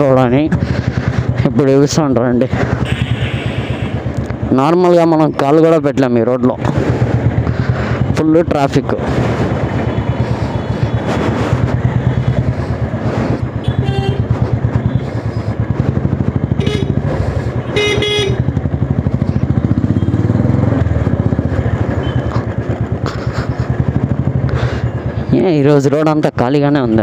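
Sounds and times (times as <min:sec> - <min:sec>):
motorcycle engine running: 0:00.0 - 0:27.0
vehicle horn toots: 0:13.6 - 0:14.3, 0:16.6 - 0:17.0, 0:17.6 - 0:18.5.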